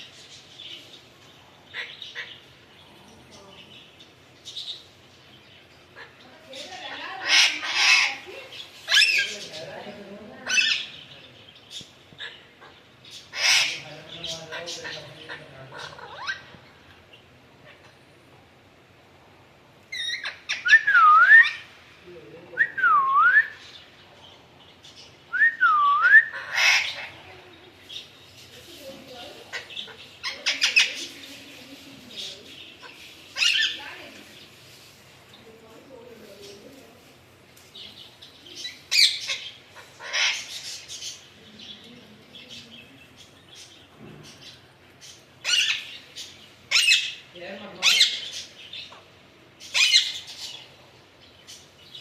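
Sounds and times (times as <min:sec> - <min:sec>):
parakeet harsh squawks: 0:01.7 - 0:02.6, 0:06.8 - 0:08.3, 0:12.2 - 0:16.6, 0:26.3 - 0:27.2, 0:32.8 - 0:33.9, 0:38.8 - 0:41.2, 0:46.7 - 0:48.5
parakeet call: 0:06.0 - 0:09.4, 0:12.2 - 0:13.8, 0:26.1 - 0:27.2, 0:32.8 - 0:33.9, 0:38.6 - 0:41.2, 0:45.4 - 0:47.2.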